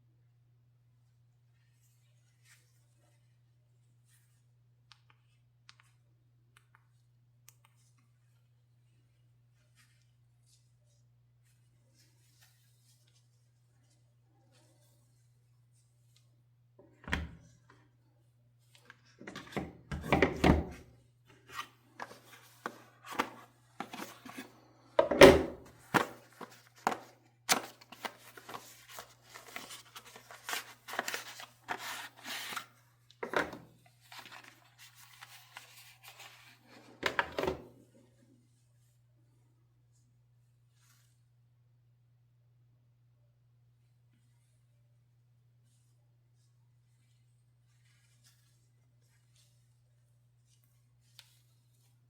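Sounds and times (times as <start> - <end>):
faint electrical hum: 0.0 - 52.0
packaging rustling: 25.8 - 32.7, 34.0 - 36.6.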